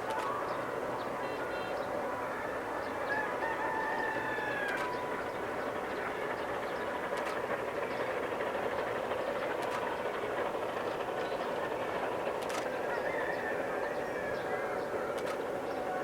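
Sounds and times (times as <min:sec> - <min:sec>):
steam train running: 0:00.0 - 0:16.0
rooster crowing: 0:03.0 - 0:05.3, 0:12.9 - 0:15.3.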